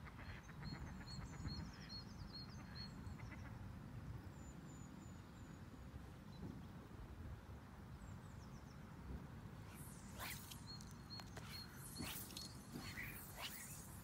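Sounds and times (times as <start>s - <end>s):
birds trilling: 9.8s - 14.0s.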